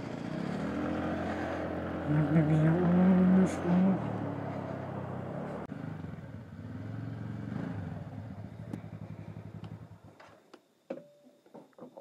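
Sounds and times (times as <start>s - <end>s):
motorcycle engine slowing to idle: 4.1s - 10.4s.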